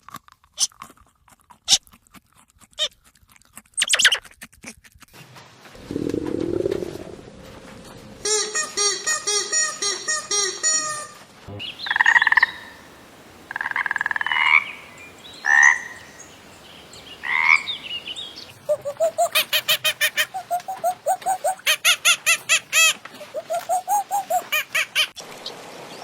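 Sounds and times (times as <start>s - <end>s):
frogs croaking: 11.6s - 24.5s.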